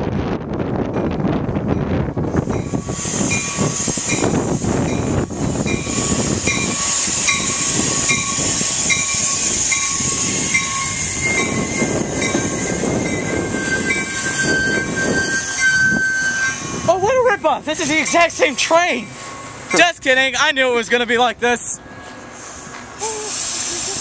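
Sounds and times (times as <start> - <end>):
train cars rolling on steel wheels: 0.1 - 24.0
thin steady squeal: 2.5 - 17.1, 17.7 - 22.7
high ringing tone: 4.9 - 17.1, 17.9 - 21.2.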